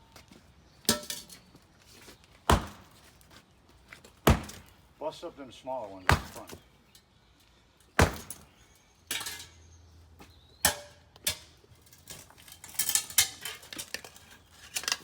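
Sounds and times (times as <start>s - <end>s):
concrete being struck: 2.5s - 3.0s, 4.2s - 4.7s, 6.0s - 6.6s, 8.0s - 8.5s
concrete pieces clattering: 11.2s - 15.0s.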